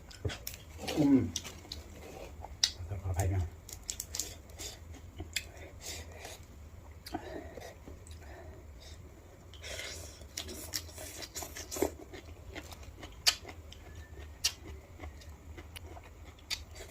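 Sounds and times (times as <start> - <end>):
wet crackly chewing: 0.0 - 2.8, 3.6 - 8.4, 9.5 - 16.9.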